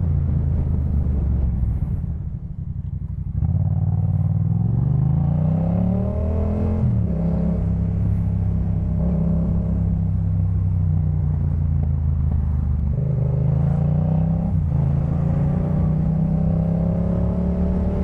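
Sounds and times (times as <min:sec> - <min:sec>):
motorcycle engine revving: 0:03.1 - 0:10.4, 0:11.4 - 0:18.0.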